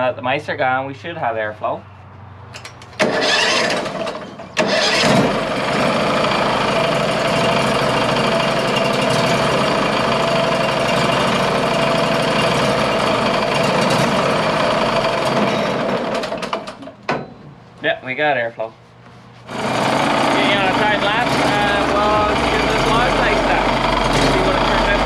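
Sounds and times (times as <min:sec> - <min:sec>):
engine starting and running: 0:02.6 - 0:17.0, 0:19.5 - 0:25.0.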